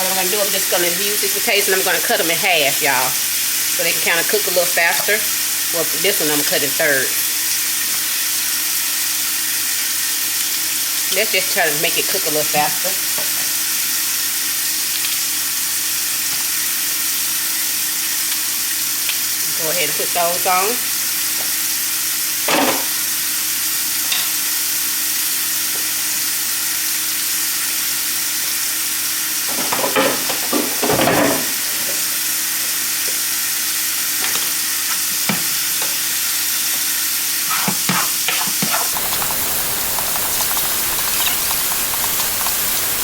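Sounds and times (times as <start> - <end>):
steak sizzling in a skillet: 0.1 - 29.5, 31.6 - 43.0.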